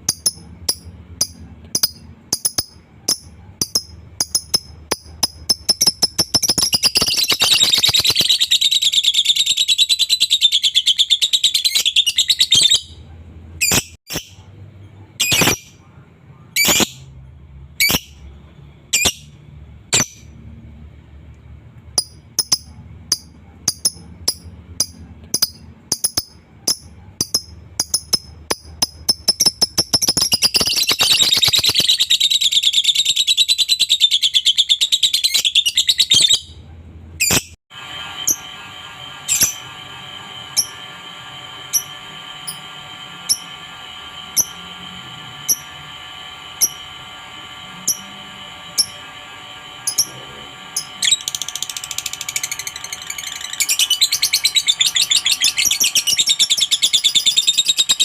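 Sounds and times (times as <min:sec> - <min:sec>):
bird chirping and trilling: 0:00.0 - 0:13.0, 0:13.6 - 0:14.4, 0:15.2 - 0:15.8, 0:16.5 - 0:17.1, 0:17.8 - 0:18.3, 0:18.9 - 0:20.4, 0:22.0 - 0:36.6, 0:37.2 - 0:37.6, 0:50.8 - 0:58.0
steady hum: 0:36.6 - 0:58.0.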